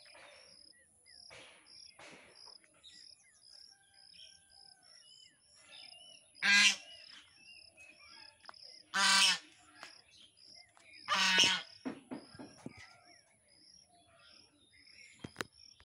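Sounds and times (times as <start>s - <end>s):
large bird harsh calls: 5.8s - 9.9s, 10.6s - 13.3s.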